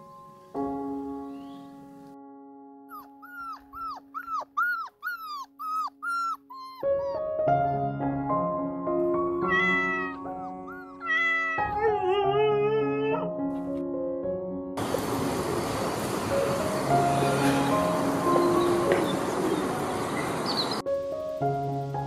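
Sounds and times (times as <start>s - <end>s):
background music: 0.0s - 14.8s, 16.6s - 22.0s
kittens mewing: 9.4s - 13.3s.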